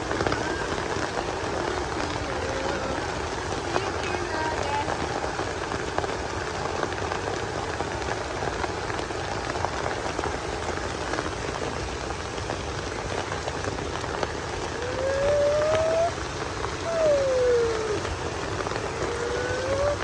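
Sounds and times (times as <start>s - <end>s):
rain falling: 0.0s - 20.0s.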